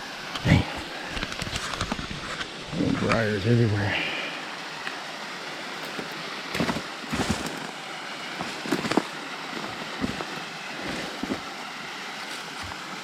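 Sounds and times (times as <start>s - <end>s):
creek and waterfall rushing: 0.0s - 13.0s
footsteps crunching dry leaves: 5.9s - 11.6s.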